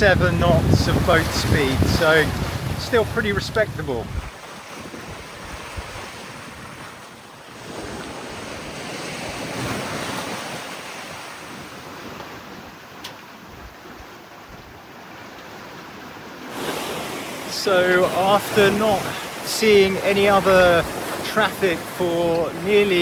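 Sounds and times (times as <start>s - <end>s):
wind buffeting microphone: 0.0s - 12.8s
sea water rushing along hull: 0.0s - 23.0s.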